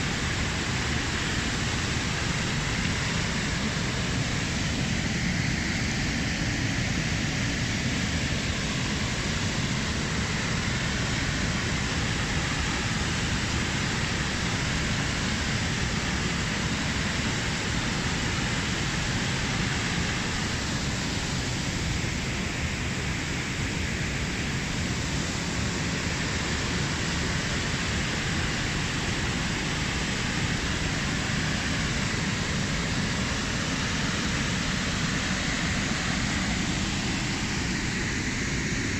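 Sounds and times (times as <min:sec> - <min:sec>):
waterfall roaring: 0:00.0 - 0:38.9.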